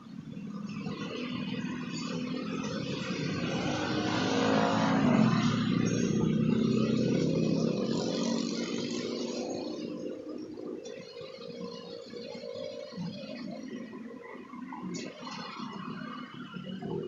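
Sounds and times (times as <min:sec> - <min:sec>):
vehicle engine passing by: 0:00.6 - 0:13.8.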